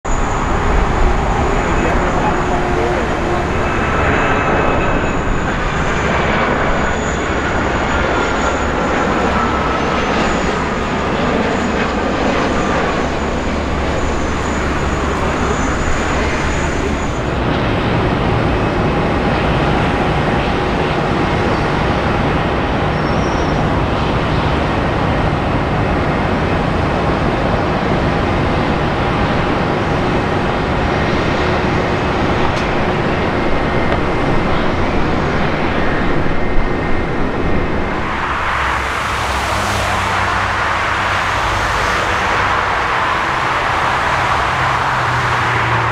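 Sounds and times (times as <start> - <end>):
jet engines whining: 0.0 - 45.9.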